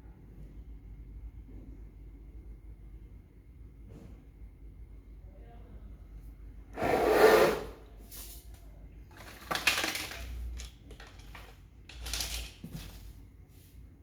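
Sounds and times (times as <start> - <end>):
packaging rustling and scraping: 9.1 - 13.2.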